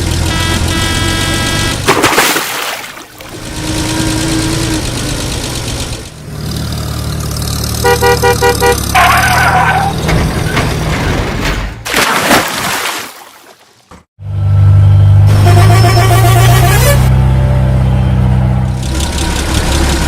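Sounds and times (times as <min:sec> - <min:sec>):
horn toots and honk: 0:00.0 - 0:01.9, 0:07.7 - 0:10.0, 0:15.0 - 0:18.3
vehicle engine rumbling: 0:00.0 - 0:02.0, 0:03.1 - 0:11.8, 0:14.2 - 0:20.0.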